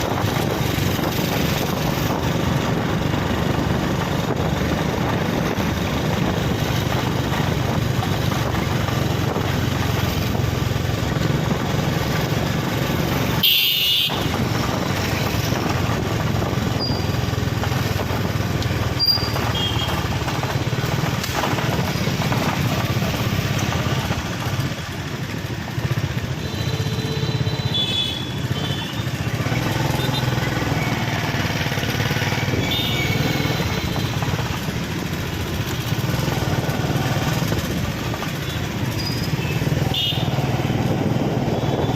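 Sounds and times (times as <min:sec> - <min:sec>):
motorcycle engines running: 0:00.0 - 0:41.9
street traffic: 0:00.0 - 0:41.9.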